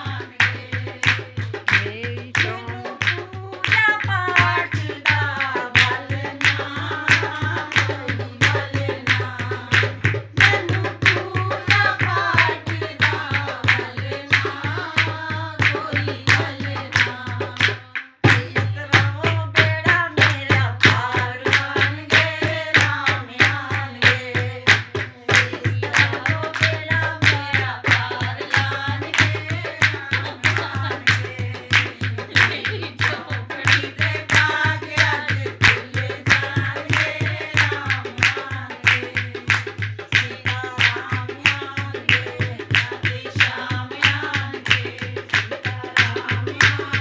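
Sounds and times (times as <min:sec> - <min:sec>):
quick tabla drum beat: 0:00.0 - 0:47.0
person singing: 0:01.9 - 0:06.4, 0:27.4 - 0:39.5.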